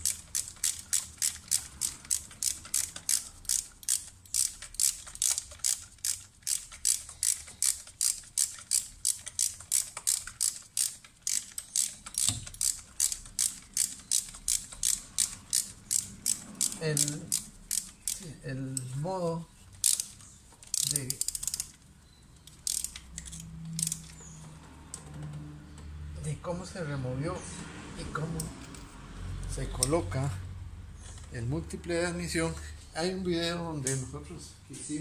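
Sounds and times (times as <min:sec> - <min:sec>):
ratchet wrench clicking: 0:00.0 - 0:18.9, 0:19.7 - 0:21.8, 0:22.4 - 0:25.0.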